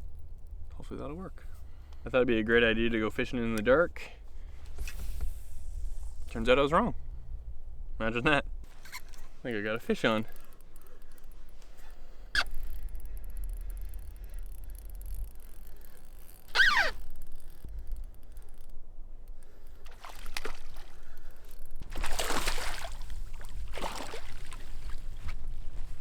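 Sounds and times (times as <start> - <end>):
short falling squeal: 16.5 - 17.0
fish splashing at water surface: 19.8 - 25.1.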